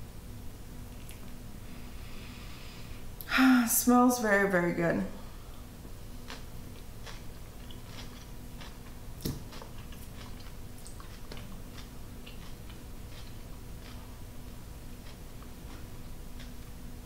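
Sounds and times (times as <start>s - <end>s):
faint steady hum: 0.0s - 17.0s
person chewing with mouth clicks: 0.9s - 1.4s, 6.2s - 16.8s.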